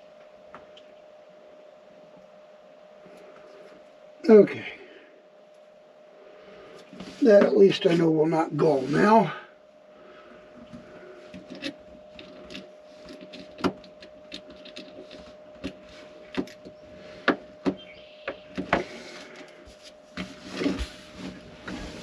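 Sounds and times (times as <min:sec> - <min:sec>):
faint steady hum: 0:00.0 - 0:22.0
scraping rustle: 0:06.4 - 0:09.4, 0:10.0 - 0:17.3, 0:18.4 - 0:22.0.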